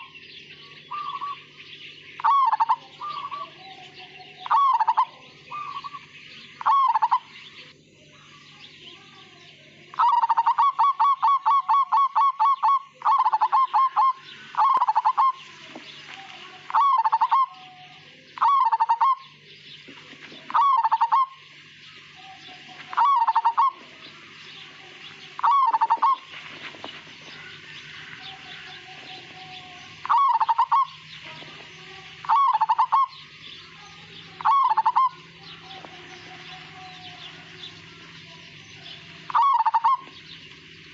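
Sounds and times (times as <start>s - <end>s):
dove cooing: 0.0s - 8.3s, 9.8s - 40.9s
steady hiss: 12.9s - 40.9s.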